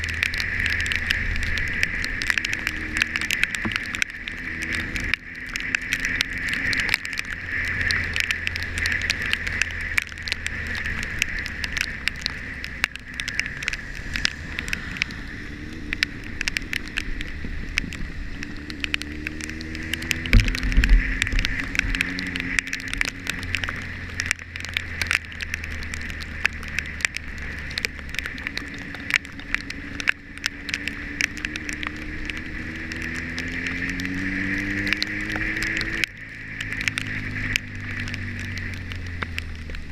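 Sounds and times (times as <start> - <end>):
rain pattering on camera: 0.0 - 39.9
motorcycle engine accelerating: 10.5 - 24.2.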